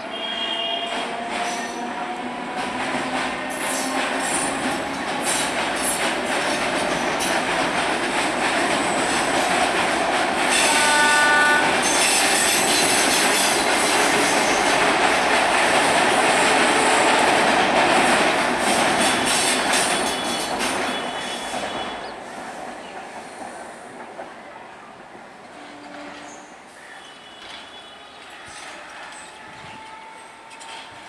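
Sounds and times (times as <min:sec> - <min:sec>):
train horn blast: 0:00.1 - 0:01.1, 0:10.5 - 0:12.0, 0:25.5 - 0:31.0
train wheels clattering on bridge: 0:00.9 - 0:22.0.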